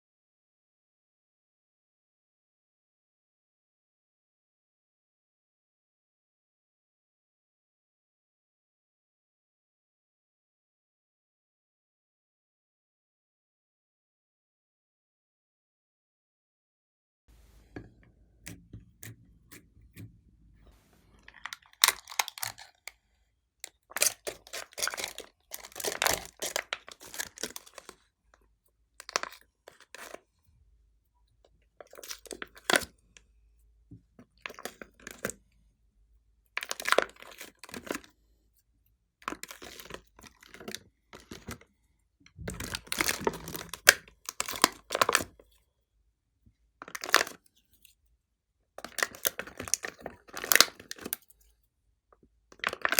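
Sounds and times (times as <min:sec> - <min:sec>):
slime clicking and crackling: 0:21.2 - 0:22.8.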